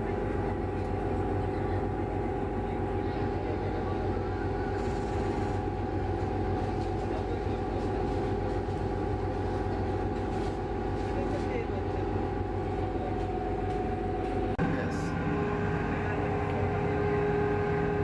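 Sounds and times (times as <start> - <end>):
vehicle engine drone: 12.3 - 18.0.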